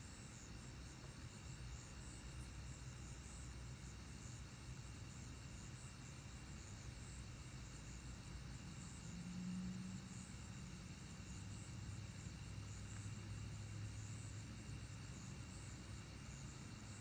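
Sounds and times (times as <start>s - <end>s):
insect chorus chirring: 1.4s - 17.0s.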